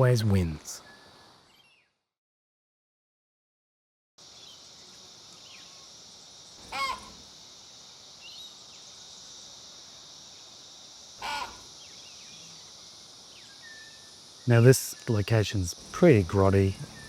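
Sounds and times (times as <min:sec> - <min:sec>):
high insect buzz: 0:04.2 - 0:17.0
small birds chirping: 0:04.2 - 0:17.0.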